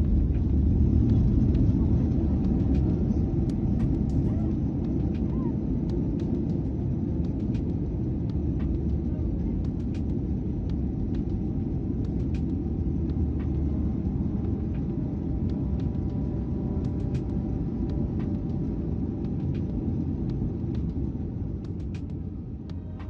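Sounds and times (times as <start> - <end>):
faint steady tones: 0.0 - 23.0
jet engines rumbling in cabin: 0.0 - 23.0.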